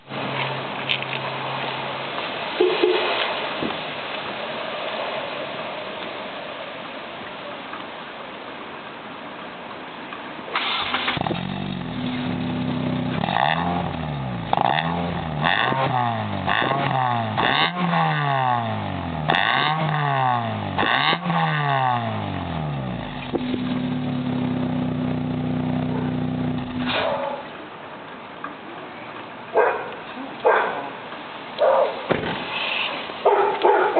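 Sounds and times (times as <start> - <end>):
car engine revving and idling: 10.9 - 27.0.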